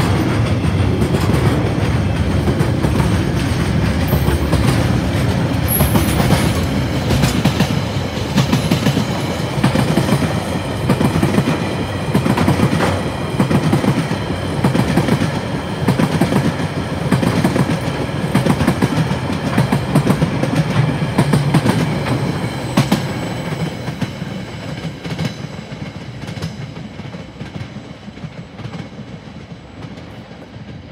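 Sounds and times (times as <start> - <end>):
wheels clattering over rail joints: 0.0 - 13.6
freight train wagons rolling: 0.0 - 30.9.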